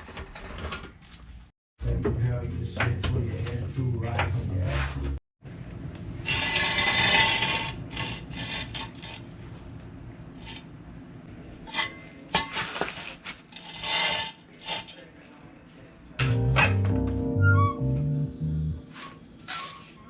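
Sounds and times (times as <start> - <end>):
rubbing and scraping: 6.3 - 9.5, 12.5 - 15.1.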